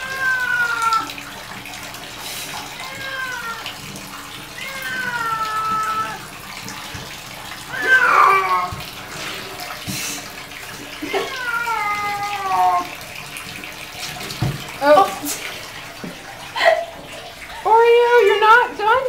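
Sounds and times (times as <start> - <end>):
cat yowling: 0.0 - 1.2, 2.8 - 6.4, 7.6 - 8.8, 11.0 - 13.0
water in a tub: 0.0 - 19.0.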